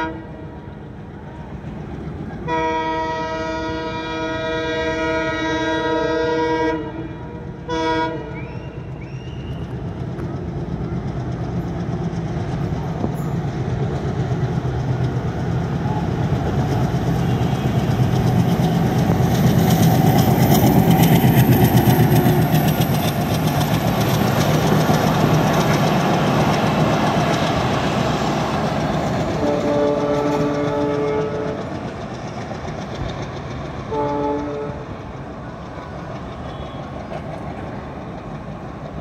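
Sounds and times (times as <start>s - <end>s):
train horn blast: 0.0s - 0.6s, 2.4s - 8.9s, 17.2s - 18.1s, 29.3s - 31.8s, 33.9s - 35.0s
diesel locomotive engine drone: 0.0s - 39.0s
train wheels rumbling on rails: 0.0s - 39.0s.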